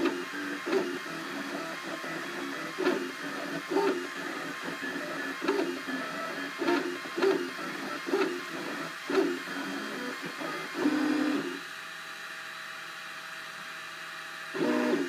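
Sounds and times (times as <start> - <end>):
stepper motors whining: 0.0 - 11.6, 14.6 - 15.0.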